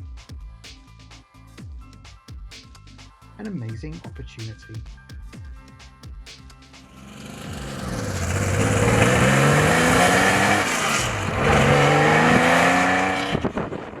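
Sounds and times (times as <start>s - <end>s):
car engine accelerating hard: 6.9s - 14.0s.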